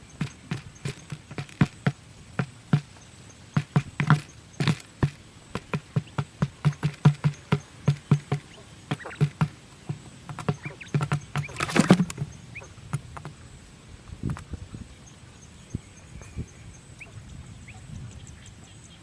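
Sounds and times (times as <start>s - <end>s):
scraping rustle: 0.0s - 12.4s
light taps and knocks: 0.0s - 13.3s.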